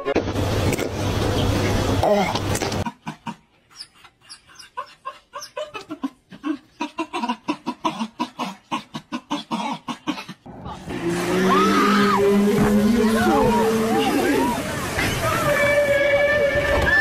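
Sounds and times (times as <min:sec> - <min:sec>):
dog whimpering and grunting: 0:03.1 - 0:10.5
wind and water noise: 0:10.8 - 0:17.0.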